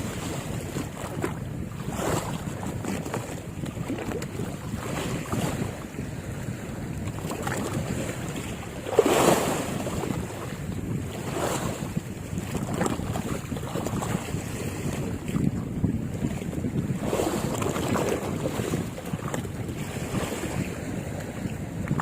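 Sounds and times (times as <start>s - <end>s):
waves washing: 0.0s - 22.0s
wind buffeting microphone: 0.0s - 22.0s.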